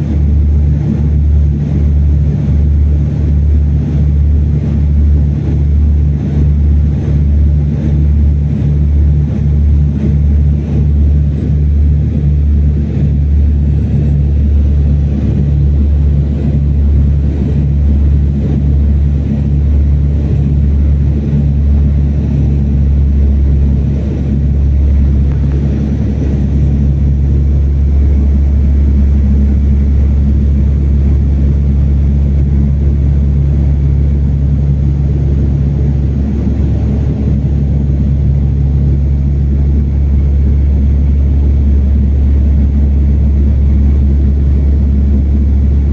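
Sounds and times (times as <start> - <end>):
propeller engines droning: 0.0 - 45.9.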